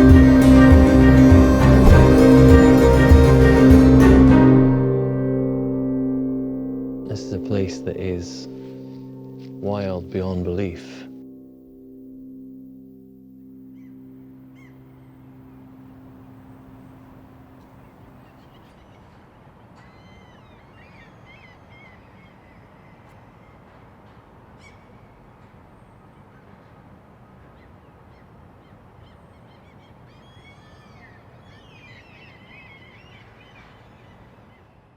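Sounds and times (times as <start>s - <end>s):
outdoor background hiss: 5.6s - 34.9s
wild birds squawking: 16.4s - 34.9s.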